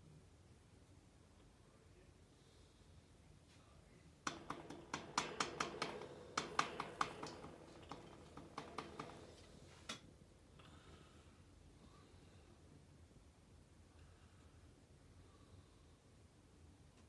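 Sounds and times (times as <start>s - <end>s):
sharp clicks and taps: 4.2s - 10.1s.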